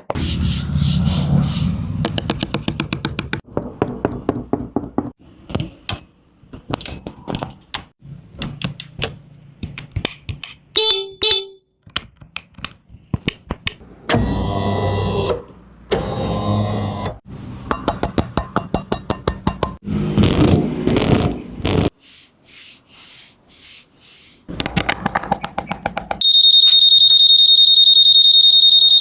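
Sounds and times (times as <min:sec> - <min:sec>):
scooter horn beeps: 0:10.8 - 0:11.6.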